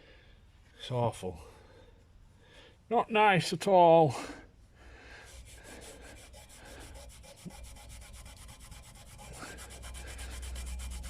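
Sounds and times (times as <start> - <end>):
cloth rubbing on metal pipe: 5.2 - 11.0.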